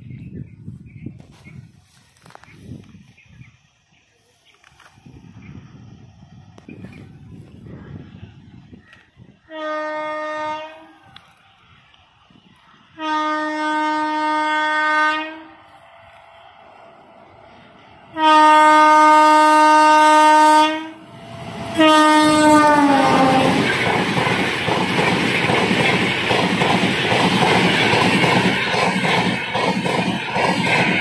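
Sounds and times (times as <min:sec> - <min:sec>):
locomotive horn blasts: 0:09.5 - 0:11.0, 0:12.9 - 0:15.6, 0:18.1 - 0:21.0, 0:21.7 - 0:23.7.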